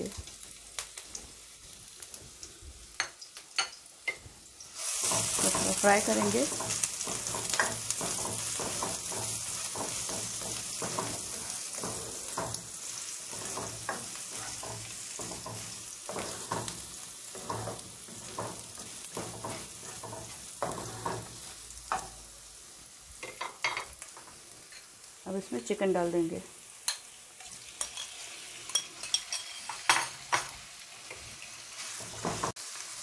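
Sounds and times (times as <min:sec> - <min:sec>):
garlic sizzling in hot oil: 0:00.0 - 0:33.0
spatula scraping and tapping wok: 0:03.0 - 0:22.3, 0:26.8 - 0:32.8.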